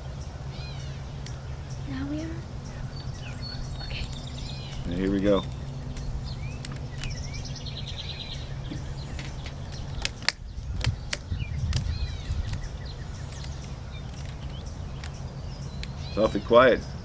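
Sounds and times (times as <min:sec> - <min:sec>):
low rumble: 0:00.0 - 0:16.9
birds chirping: 0:00.0 - 0:17.0
rubber bands snapping: 0:08.7 - 0:16.0.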